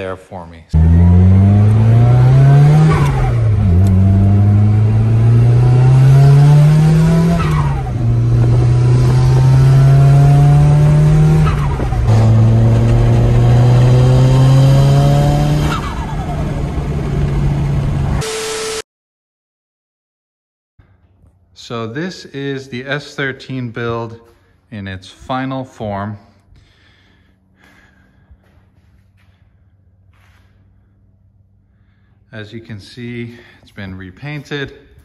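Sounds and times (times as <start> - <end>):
turbocharged car engine accelerating: 0.7 - 18.8
turbo whistle: 18.2 - 18.8.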